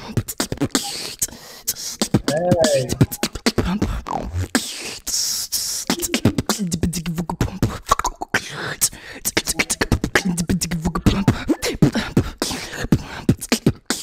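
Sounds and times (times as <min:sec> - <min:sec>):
beatboxing: 0:00.0 - 0:14.0.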